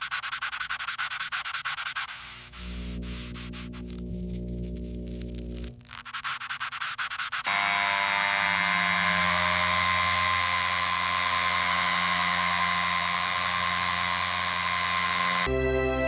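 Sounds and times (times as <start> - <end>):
electric tool motor running: 7.5 - 15.5.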